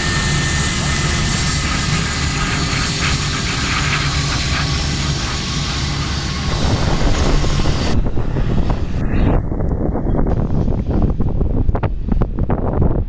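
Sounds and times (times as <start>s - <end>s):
jet engines roaring: 0.0s - 12.4s
wind rumbling on microphone: 0.1s - 13.0s.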